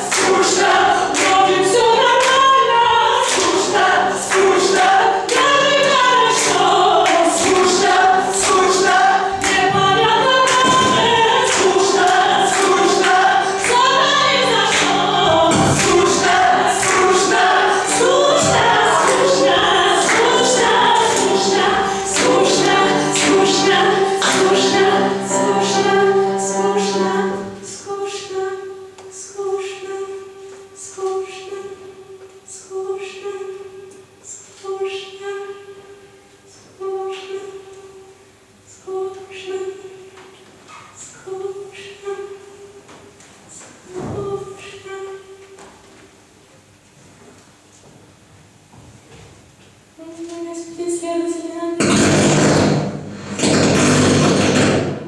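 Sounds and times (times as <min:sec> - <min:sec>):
choir singing: 0:00.0 - 0:30.4
low held choir notes: 0:00.0 - 0:32.2.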